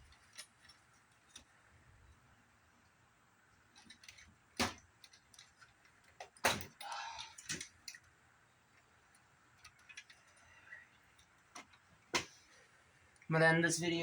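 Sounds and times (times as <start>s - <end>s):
clicks and knocks of hard parts: 3.7s - 8.1s.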